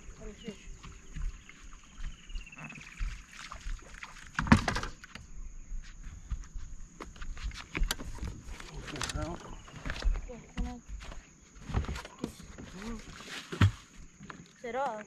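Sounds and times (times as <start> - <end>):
knocks and clicks on a boat: 4.4 - 5.2, 7.7 - 11.2.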